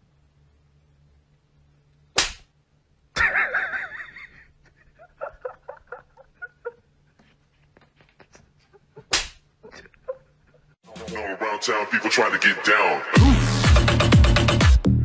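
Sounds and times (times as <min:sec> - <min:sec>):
sharp smack: 0:02.2 - 0:02.5, 0:09.1 - 0:09.4.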